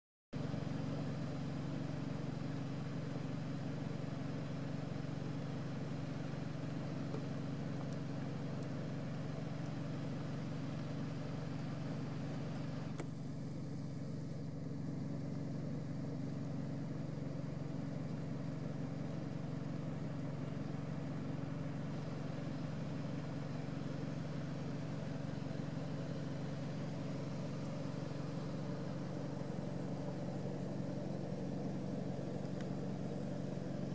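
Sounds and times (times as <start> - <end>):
car engine humming: 21.2 - 33.9.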